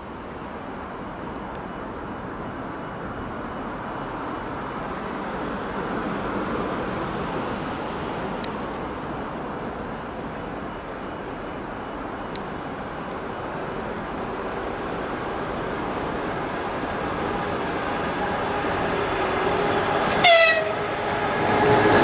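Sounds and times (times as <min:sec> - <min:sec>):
train wheels rushing: 0:13.8 - 0:22.0.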